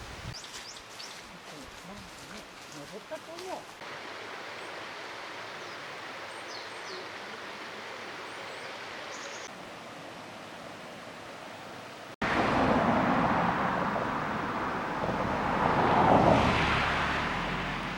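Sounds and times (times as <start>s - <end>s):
stream water rushing: 0.0s - 17.9s
faint bird chirps: 5.4s - 9.5s.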